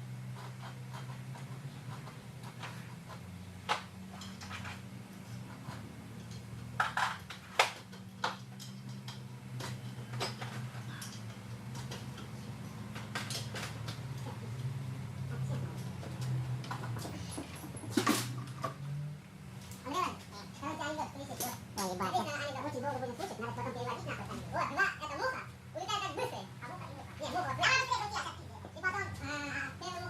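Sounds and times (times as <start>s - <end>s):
metal tools clinking and knocking: 4.1s - 4.9s, 5.7s - 14.7s.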